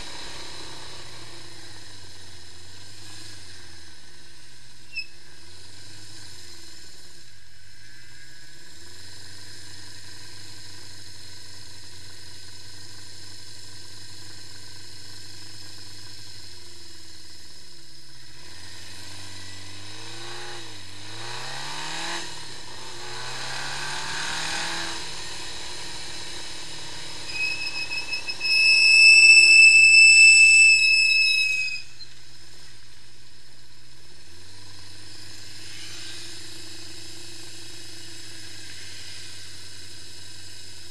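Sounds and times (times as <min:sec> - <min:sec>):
motorcycle engine idling and revving: 0:00.0 - 0:40.9
loud high squeal: 0:04.9 - 0:05.2, 0:25.9 - 0:32.2.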